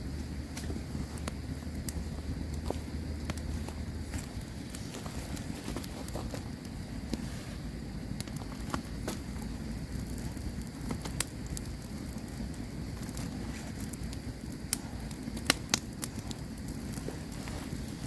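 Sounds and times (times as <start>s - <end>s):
campfire crackling: 0.0s - 18.0s
low rush of flames: 0.0s - 18.0s.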